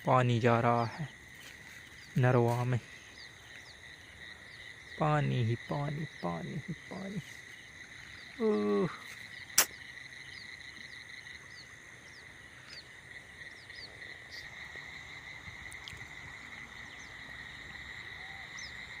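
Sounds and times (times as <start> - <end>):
frogs and insects droning: 0.0 - 19.0
sharp click: 9.6 - 9.8.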